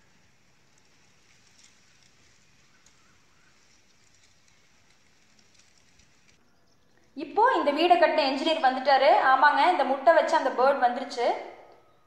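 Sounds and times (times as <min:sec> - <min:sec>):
distant bird chirps: 0:00.0 - 0:08.9, 0:11.5 - 0:12.0.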